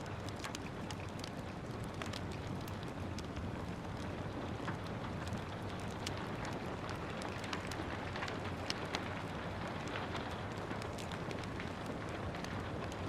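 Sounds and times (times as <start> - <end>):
steady rain: 0.0 - 13.0
wood fire crackling: 0.0 - 13.0.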